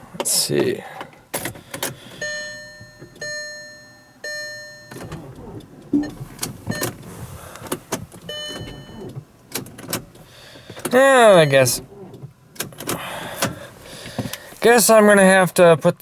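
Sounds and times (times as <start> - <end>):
dashboard warning chimes: 1.8 - 12.2.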